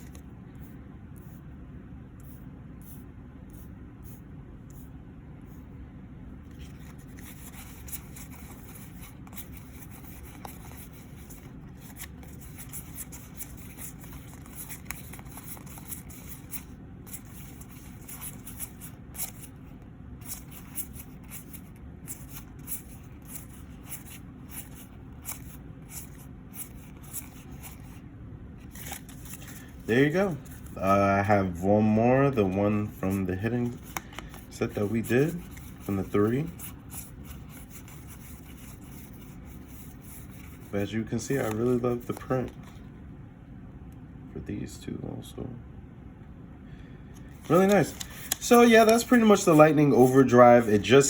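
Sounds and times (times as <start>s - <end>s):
steady low hum: 0.0s - 51.0s
trading cards rustling and clicking: 6.5s - 19.6s, 20.2s - 28.0s, 28.6s - 31.3s, 32.2s - 42.9s, 47.2s - 51.0s.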